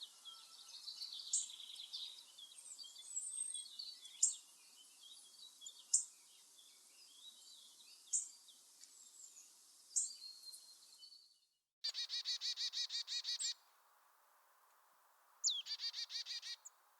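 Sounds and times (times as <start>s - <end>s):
birds twittering: 11.8s - 13.6s, 15.4s - 16.7s.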